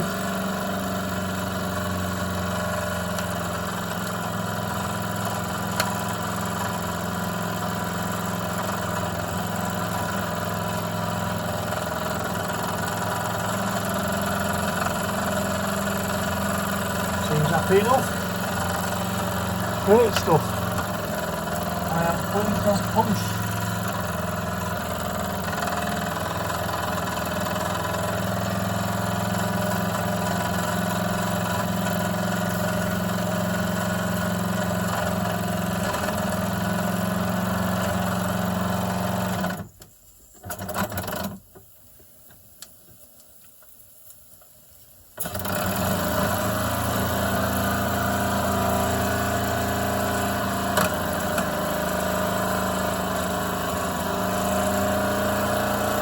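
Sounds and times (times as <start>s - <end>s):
model steam engine running: 0.0s - 39.5s, 45.2s - 56.0s.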